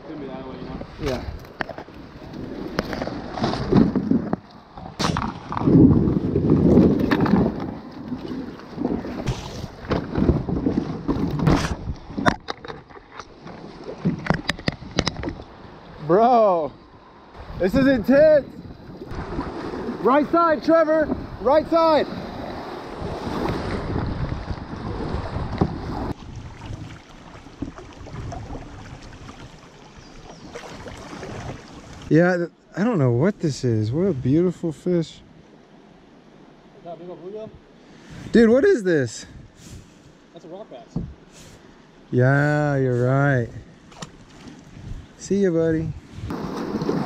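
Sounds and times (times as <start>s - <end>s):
wind on microphone: 0.7s - 12.4s, 21.0s - 32.1s, 44.6s - 47.0s
kayak hull scraping over gravel: 1.0s - 11.8s, 46.1s - 47.0s
river water flowing: 18.2s - 32.1s.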